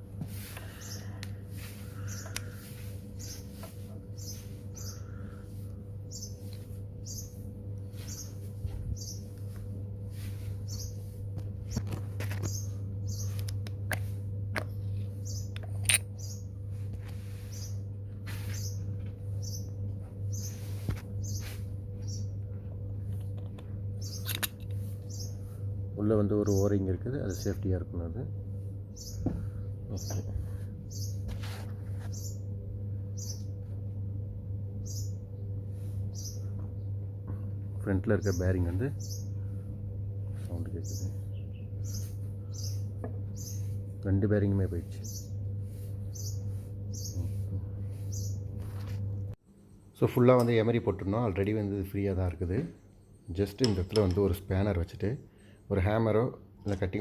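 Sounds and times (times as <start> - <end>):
low hum: 0.0 - 54.2.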